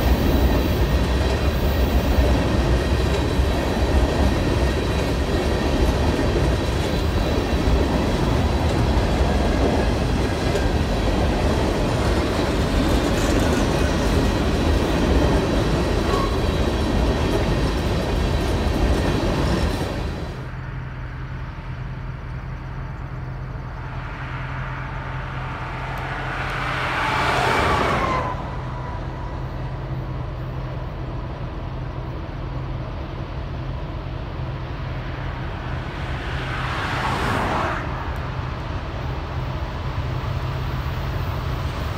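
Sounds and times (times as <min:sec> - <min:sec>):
freight train wheels rushing on rail: 0:00.0 - 0:41.9
road vehicle passing: 0:20.0 - 0:31.2, 0:33.9 - 0:41.9.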